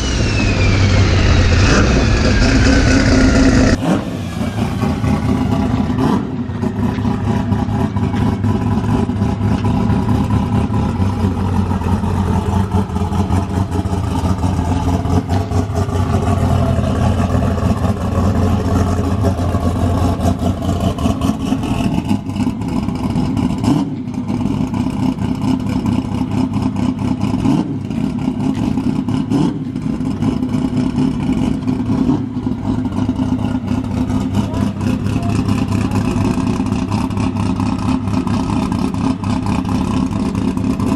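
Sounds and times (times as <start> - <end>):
drag car engine running: 0.0 - 40.9.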